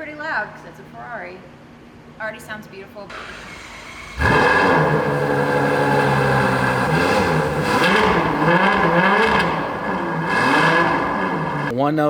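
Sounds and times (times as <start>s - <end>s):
car engine revving: 3.1s - 11.7s.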